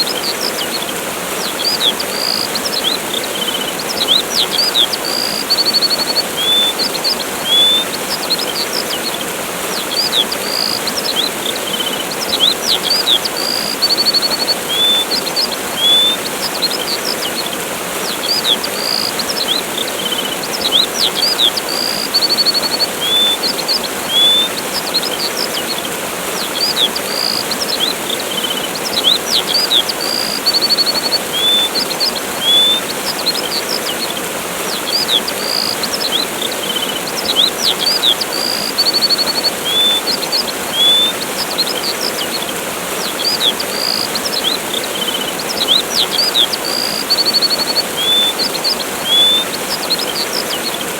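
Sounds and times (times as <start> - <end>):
small birds chirping: 0.0 - 50.9
waterfall rushing: 0.0 - 50.9.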